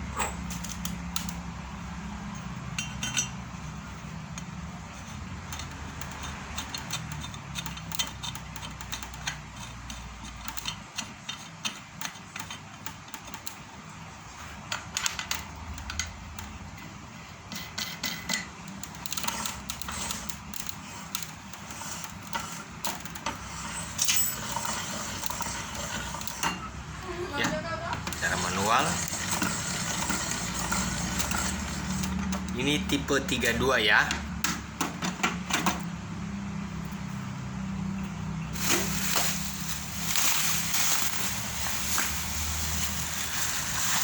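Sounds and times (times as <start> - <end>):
metal parts clinking and knocking: 2.3 - 3.4, 5.5 - 13.6, 17.5 - 26.7, 38.6 - 44.0.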